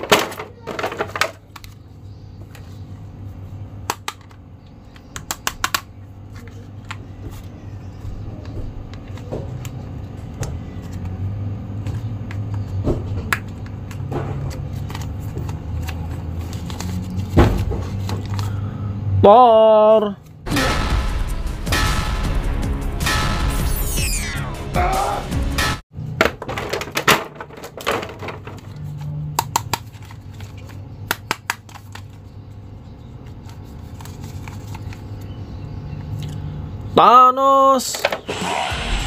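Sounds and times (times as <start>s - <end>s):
plastic toys clicking and tapping: 0.0s - 1.8s, 3.8s - 7.1s, 26.2s - 32.3s.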